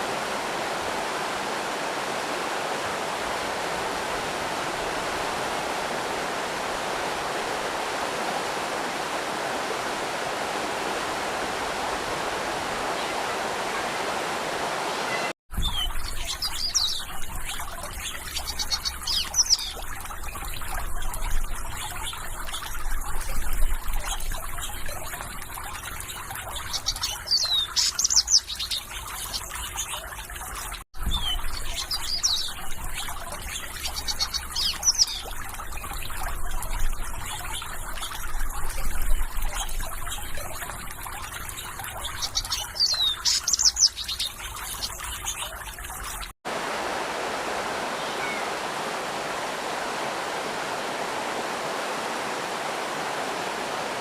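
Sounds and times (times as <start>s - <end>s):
trickle of running water: 0.0s - 54.0s
small birds chirping: 15.1s - 46.3s, 47.9s - 48.6s.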